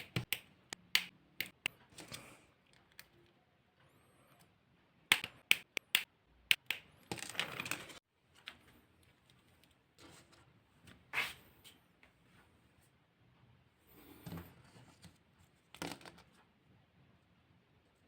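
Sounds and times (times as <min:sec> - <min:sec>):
sharp plastic clicks: 0:00.0 - 0:01.8, 0:05.1 - 0:06.9
soft scrapes and rustles: 0:13.9 - 0:15.7.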